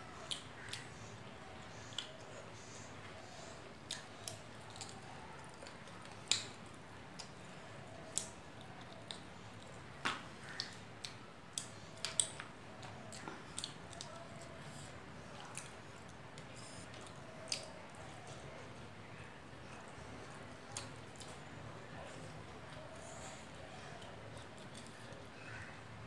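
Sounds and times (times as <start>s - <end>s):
person chewing food: 3.8s - 18.4s, 19.9s - 25.7s.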